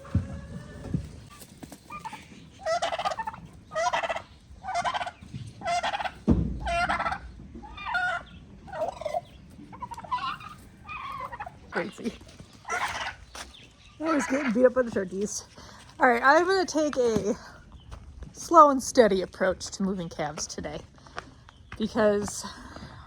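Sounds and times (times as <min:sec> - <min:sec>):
turkeys gobbling: 0:00.0 - 0:15.3
thump: 0:06.2 - 0:06.7.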